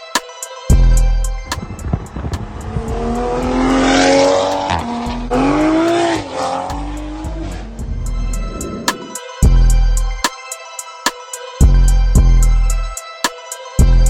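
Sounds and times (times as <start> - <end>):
car exhaust accelerating hard: 0.7 - 10.2.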